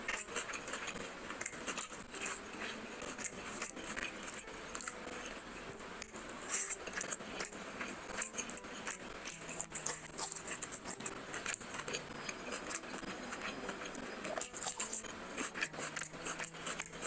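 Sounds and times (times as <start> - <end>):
mouth chewing with clicks: 0.0 - 17.0.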